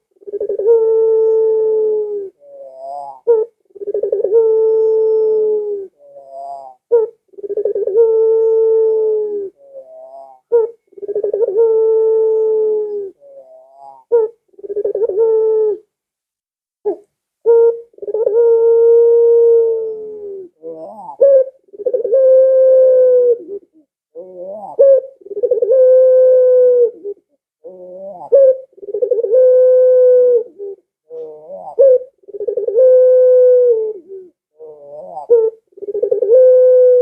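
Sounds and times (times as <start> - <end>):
dove cooing: 0.0 - 15.9, 16.8 - 37.0.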